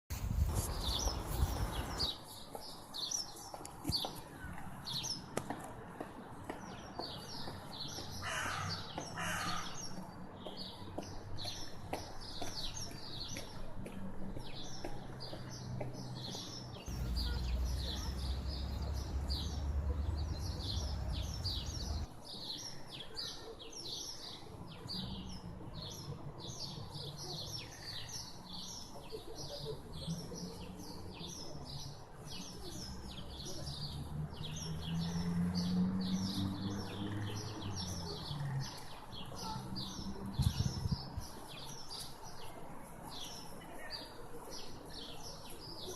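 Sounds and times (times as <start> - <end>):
small birds chirping: 0.3 - 5.3, 14.4 - 45.9.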